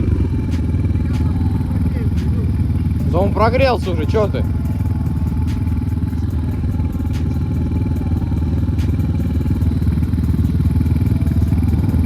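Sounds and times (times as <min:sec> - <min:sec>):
motorcycle engines idling: 0:00.0 - 0:12.0.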